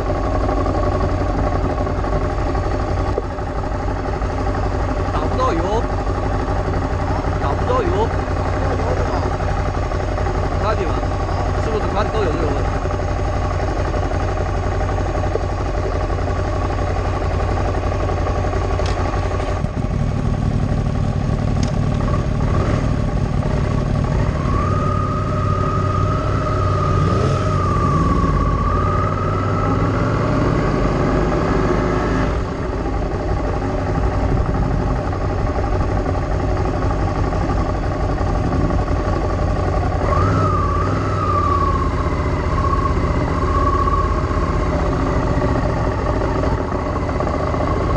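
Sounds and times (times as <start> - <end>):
vehicle engine running: 0.0 - 47.9
wavering high whine: 23.6 - 30.8.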